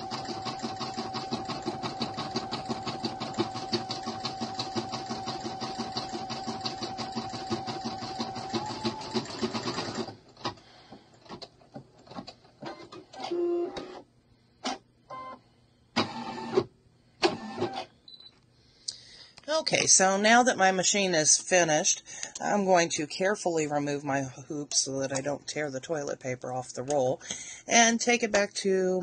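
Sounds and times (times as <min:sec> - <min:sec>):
embroidery machine stitching: 0:00.0 - 0:10.6
mechanical whirs and clicks: 0:16.0 - 0:17.9.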